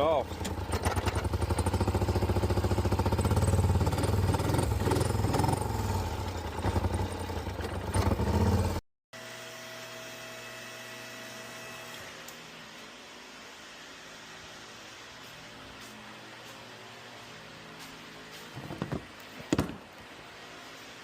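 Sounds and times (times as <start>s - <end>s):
atv engine misfiring: 0.2s - 8.8s.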